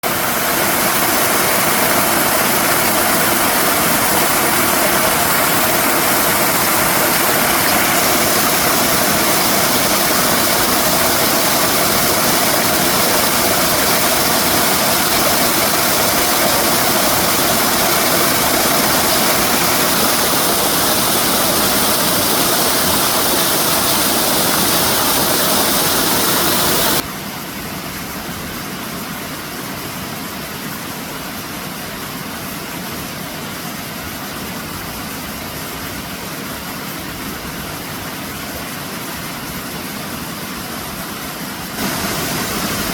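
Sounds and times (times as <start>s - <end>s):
waterfall roaring: 0.0s - 27.0s, 40.9s - 42.9s.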